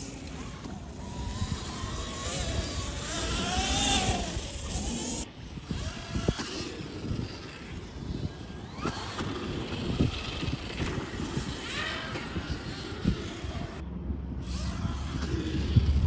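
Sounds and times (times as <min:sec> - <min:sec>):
dirt bike motors: 0:00.0 - 0:16.0
noisy background: 0:00.0 - 0:16.0.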